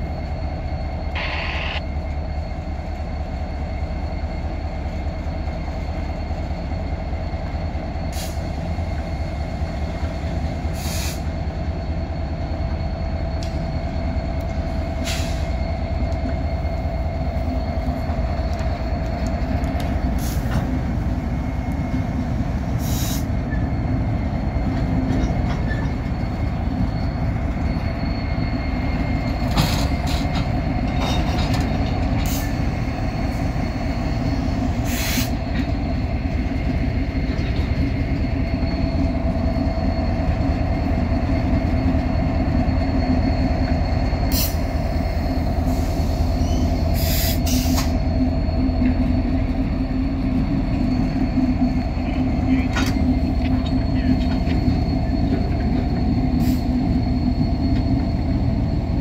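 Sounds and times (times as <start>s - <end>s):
diesel locomotive running: 0.0s - 59.0s
train cars clanking: 0.0s - 59.0s
wheel flange squeal: 20.2s - 59.0s.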